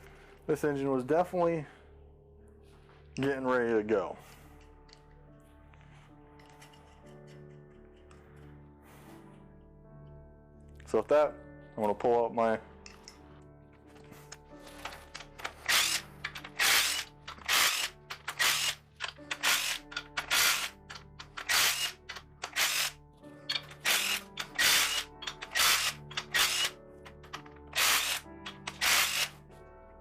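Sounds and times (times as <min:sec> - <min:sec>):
soft background music: 0:00.0 - 0:30.0
ratchet wrench clicking: 0:15.1 - 0:29.3.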